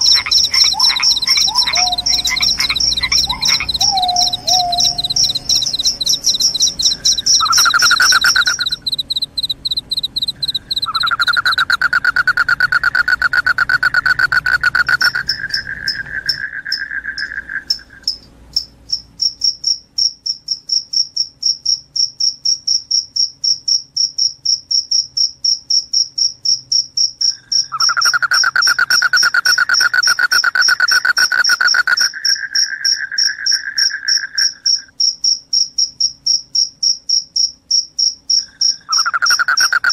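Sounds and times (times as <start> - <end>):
crickets chirping: 0.0 - 39.9
low continuous insect trill: 0.0 - 39.9.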